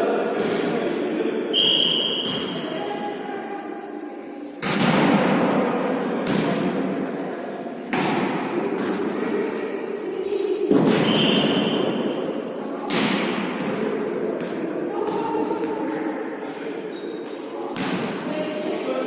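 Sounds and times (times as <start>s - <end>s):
tennis ball thuds with echo: 4.6s - 6.9s.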